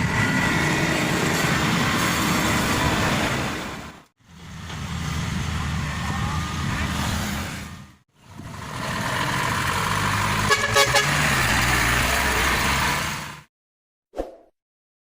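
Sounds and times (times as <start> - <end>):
combine harvester engine running: 8.2 - 11.0.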